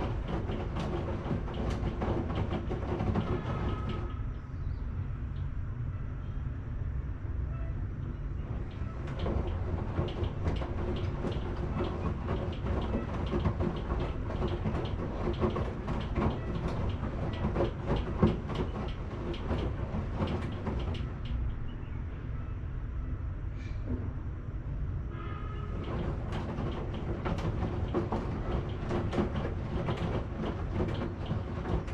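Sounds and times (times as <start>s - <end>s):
clatter of clicks and knocks: 0.0s - 4.4s, 8.4s - 21.6s, 25.7s - 31.9s
washing machine rumbling: 0.0s - 4.8s, 8.1s - 21.8s, 25.6s - 31.9s.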